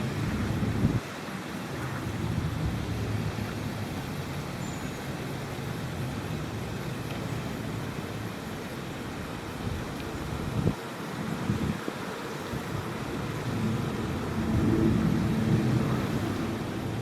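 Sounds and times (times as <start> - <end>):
faint high chirp: 4.6 - 5.0
low outdoor rumble: 12.8 - 17.0.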